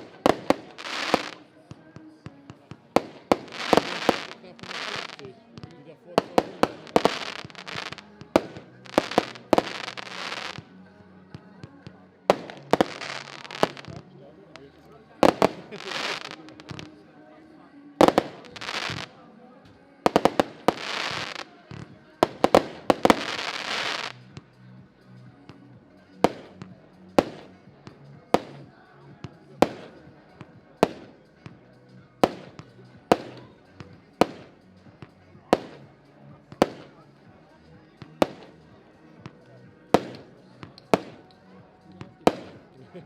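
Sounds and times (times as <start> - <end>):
firework bangs: 0.0 - 1.5, 2.5 - 10.7, 12.3 - 14.0, 15.2 - 17.0, 18.0 - 19.2, 20.0 - 24.2, 26.2 - 27.5, 28.3 - 28.6, 29.6 - 30.0, 32.2 - 33.5, 34.2 - 34.6, 35.5 - 35.8, 36.5 - 37.0, 38.2 - 38.6, 39.9 - 41.3, 42.2 - 42.7
firework crackle: 0.0 - 1.5, 2.5 - 10.7, 12.3 - 14.0, 15.2 - 17.0, 18.0 - 19.2, 20.0 - 24.4, 26.2 - 27.5, 28.3 - 28.7, 34.2 - 34.6, 35.5 - 35.8, 36.6 - 37.0, 38.2 - 38.6, 39.9 - 41.4.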